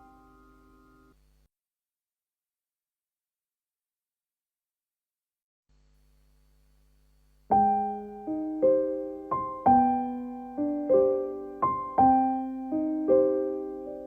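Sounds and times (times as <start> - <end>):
gentle piano melody: 0.0 - 1.1, 7.5 - 14.0.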